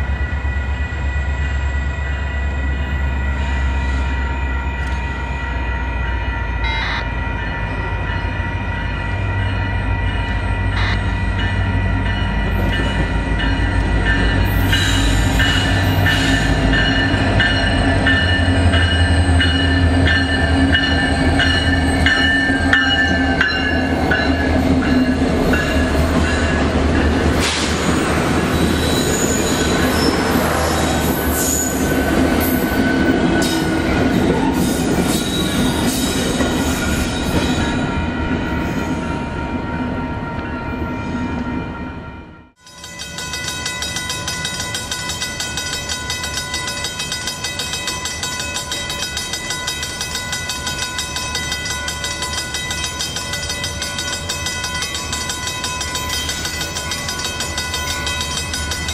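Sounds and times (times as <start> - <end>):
steel wheels squealing on rails: 0.0 - 26.5, 27.2 - 39.2, 42.7 - 58.9.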